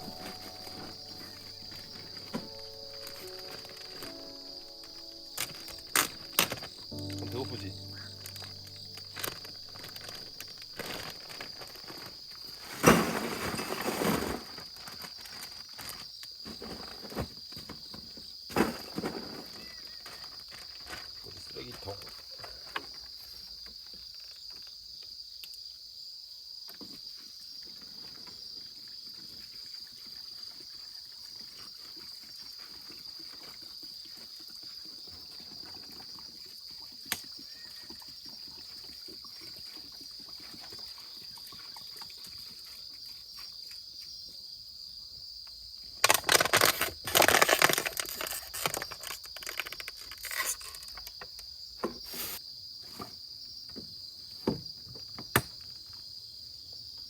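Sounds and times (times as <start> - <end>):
rustling and knocking: 0.0 - 14.5
crickets chirring: 0.0 - 57.0.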